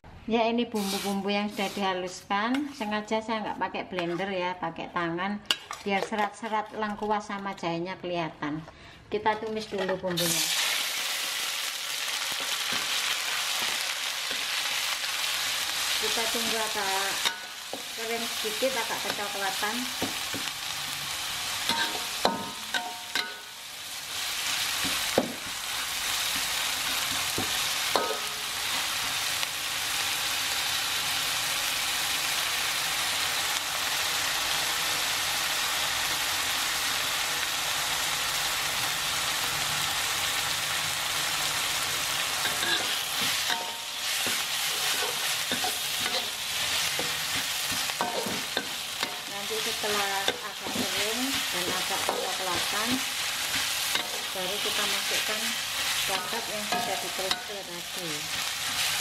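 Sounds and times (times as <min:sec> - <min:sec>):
paste sizzling in oil: 0:00.7 - 0:02.9, 0:10.2 - 0:59.0
metal spatula scraping wok: 0:00.7 - 0:03.0, 0:12.4 - 0:29.2, 0:42.3 - 0:59.0.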